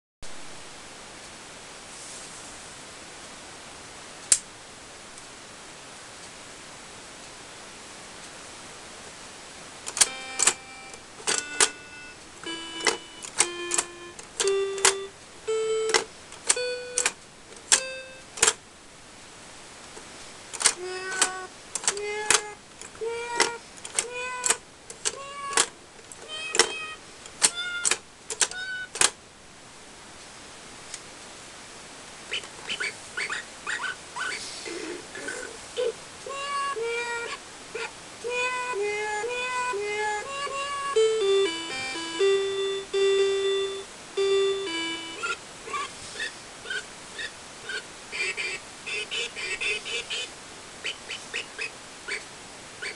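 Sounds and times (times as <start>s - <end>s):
toy piano notes: 9.9s - 18.5s, 20.7s - 29.1s, 36.3s - 37.3s, 38.3s - 45.4s.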